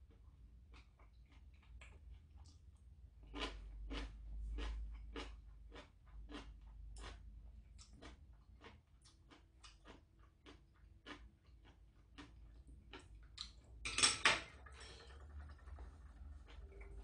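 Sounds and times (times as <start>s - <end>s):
wet chewing mouth noises: 0.7s - 13.6s.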